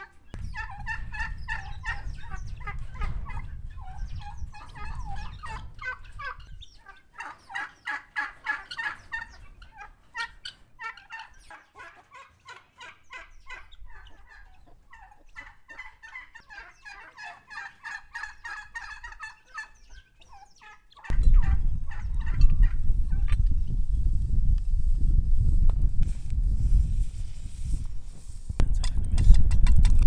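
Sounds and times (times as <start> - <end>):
turkey gobbling: 0.0 - 23.4
loud low rumbling: 0.4 - 5.8, 21.1 - 27.0.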